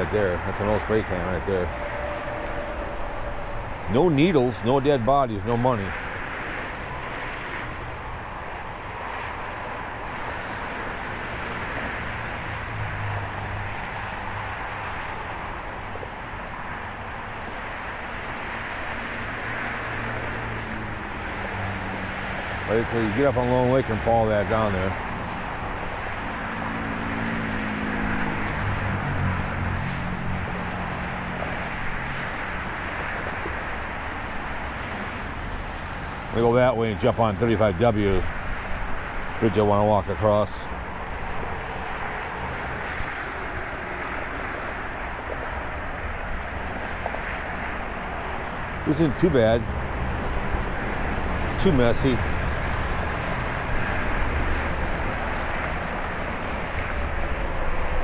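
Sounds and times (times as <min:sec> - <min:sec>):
low hum: 0:00.0 - 0:16.0
distant road traffic rumble: 0:00.0 - 0:58.0
passing vehicle engine hum: 0:00.0 - 0:58.0.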